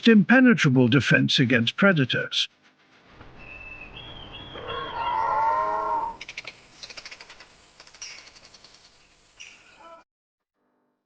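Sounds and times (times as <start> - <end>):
buffalo lowing: 4.4 - 6.2.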